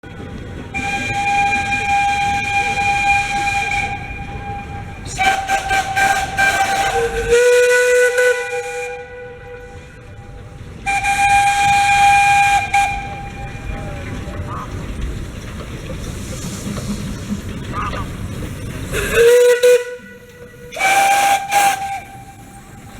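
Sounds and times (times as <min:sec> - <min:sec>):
steam locomotive whistle blasts: 0:00.7 - 0:14.3, 0:18.9 - 0:22.9
hiss of escaping steam: 0:15.1 - 0:22.9.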